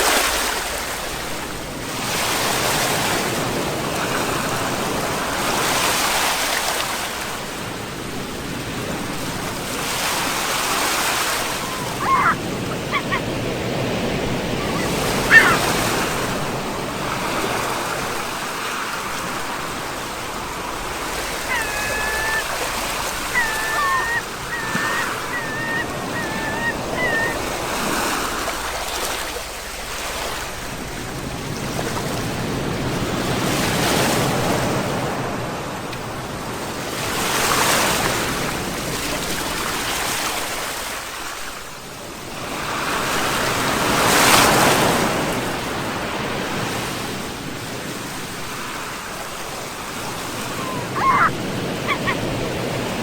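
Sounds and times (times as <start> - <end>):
sea waves breaking on shore: 0.0 - 53.0.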